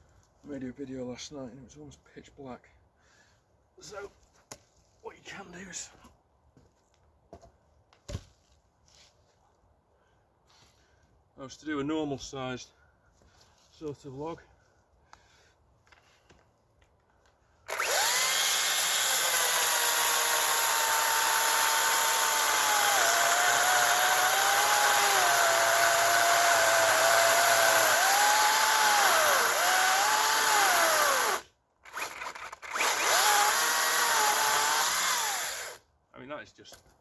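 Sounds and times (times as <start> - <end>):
electric chainsaw cutting log: 17.7 - 35.8.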